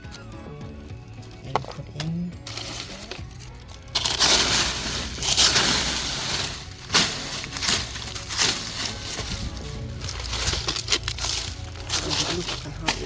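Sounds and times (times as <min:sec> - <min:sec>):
dry leaves rustling and crunching: 0:01.3 - 0:13.0
sharp crack: 0:04.0 - 0:09.4.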